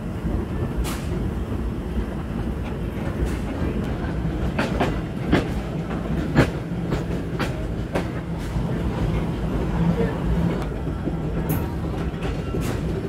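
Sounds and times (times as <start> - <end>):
train rumbling along track: 0.0 - 13.0
wheels clicking over rail joints: 2.6 - 9.3.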